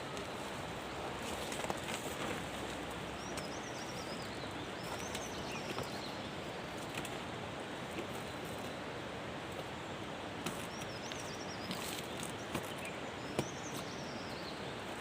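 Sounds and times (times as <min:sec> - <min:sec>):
small bird chirping: 0:03.2 - 0:06.9, 0:10.6 - 0:14.8.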